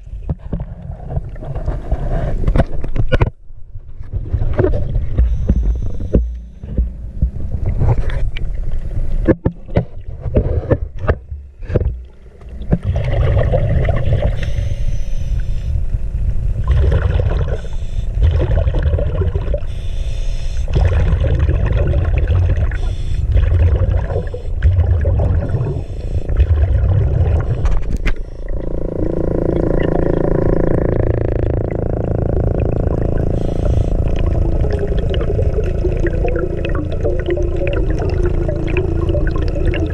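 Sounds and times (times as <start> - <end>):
boat engine rumbling: 3.3 - 39.9
hull knocking on water: 28.5 - 39.5.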